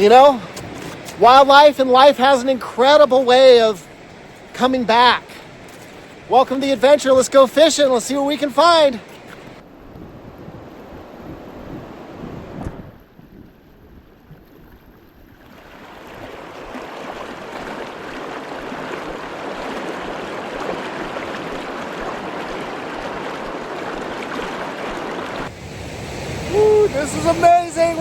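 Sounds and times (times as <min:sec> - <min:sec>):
river rapids rushing: 0:00.0 - 0:09.6, 0:16.4 - 0:28.0.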